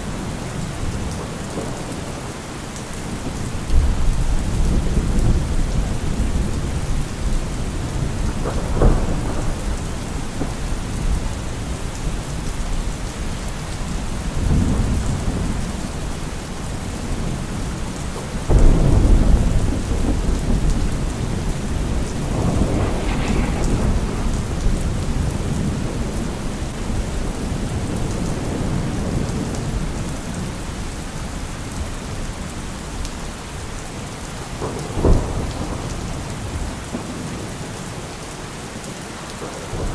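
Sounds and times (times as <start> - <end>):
heavy rain: 0.0 - 39.9
thunder rumbling: 3.0 - 30.8, 34.5 - 37.8.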